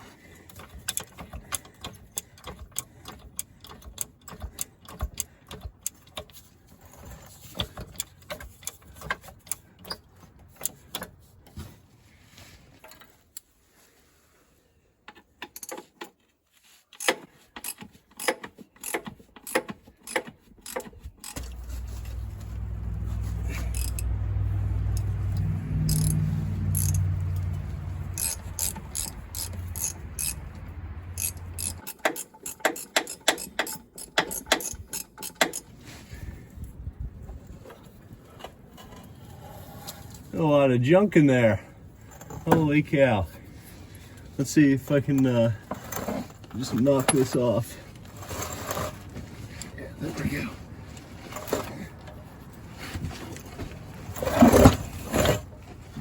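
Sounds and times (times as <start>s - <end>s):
hand tools clinking on metal: 17.0s - 35.7s
low machine hum: 21.4s - 28.6s.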